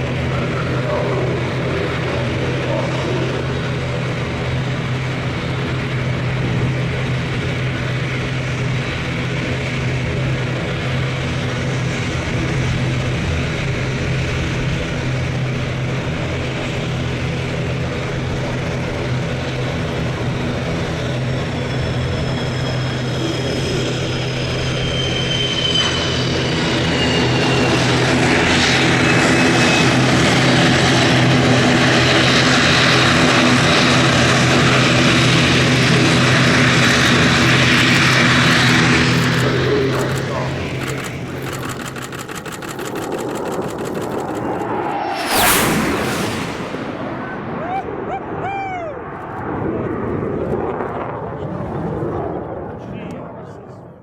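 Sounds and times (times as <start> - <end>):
jet engine humming: 0.0 - 48.3
high whine falling in pitch: 44.1 - 48.7.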